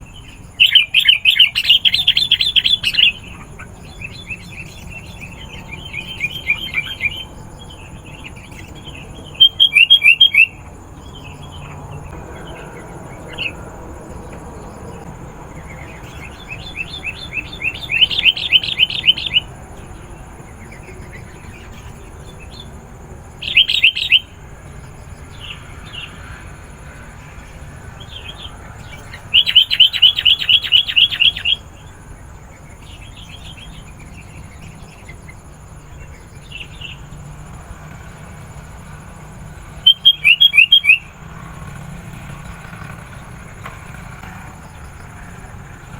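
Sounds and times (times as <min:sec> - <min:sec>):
bulbul rapid chattering calls: 0:00.0 - 0:45.9
soft bird calls: 0:00.0 - 0:45.9.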